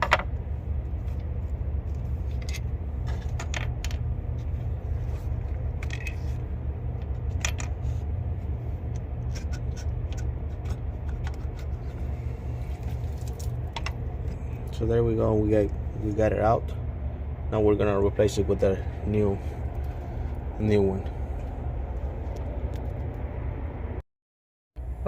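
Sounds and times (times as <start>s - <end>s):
steady low rumble: 0.0s - 24.0s
metallic clinks and scrapes: 5.8s - 6.4s.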